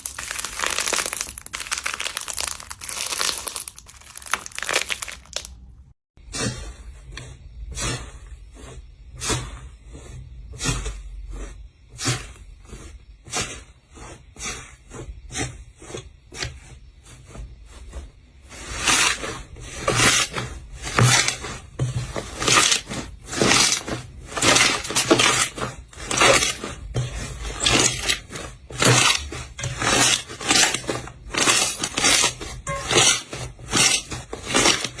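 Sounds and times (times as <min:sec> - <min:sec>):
slime squeezed crackly presses: 0:00.0 - 0:05.6.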